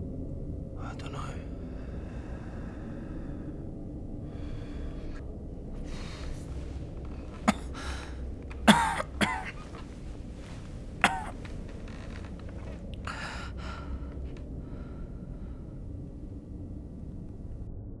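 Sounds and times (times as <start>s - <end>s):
heavy breaths: 1.4s - 17.6s
person coughing: 7.4s - 9.8s, 11.0s - 11.4s.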